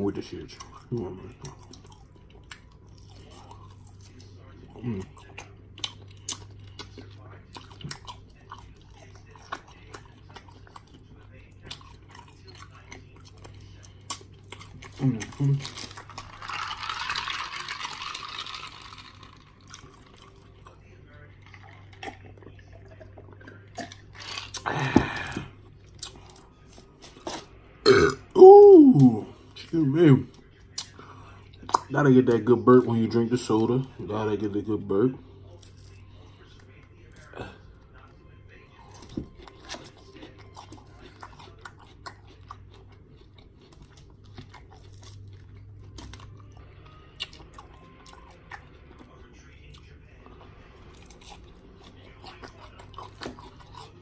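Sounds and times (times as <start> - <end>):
chewing with wet clicks: 0.3 - 16.2, 18.6 - 24.7, 25.3 - 27.4, 30.3 - 32.0, 38.0 - 54.0.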